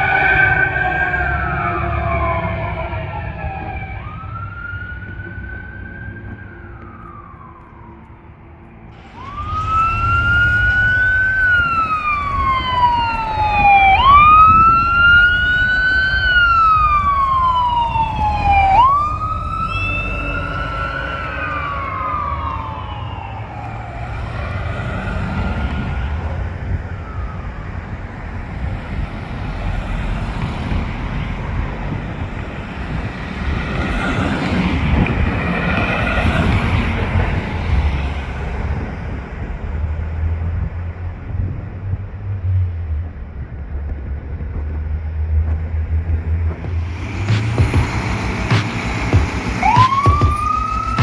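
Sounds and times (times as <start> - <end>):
electronic wail siren: 0.0 - 28.8, 46.6 - 51.0
engine rumble: 0.0 - 51.0.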